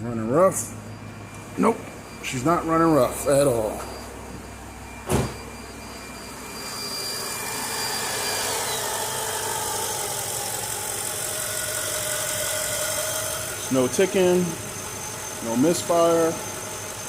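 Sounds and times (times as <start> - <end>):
car engine idling: 7.2 - 15.4.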